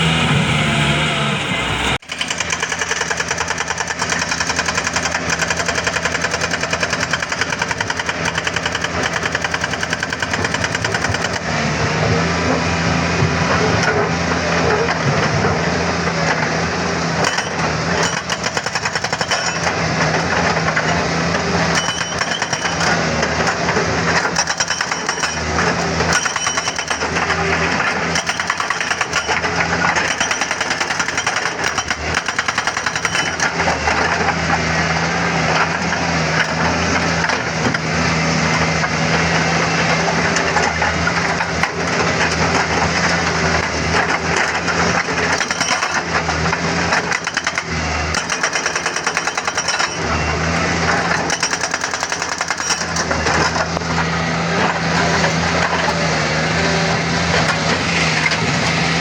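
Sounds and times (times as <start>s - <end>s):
excavator diesel engine under load: 0.0s - 59.0s
knocks and rattles on stone: 21.8s - 34.6s, 40.4s - 50.0s.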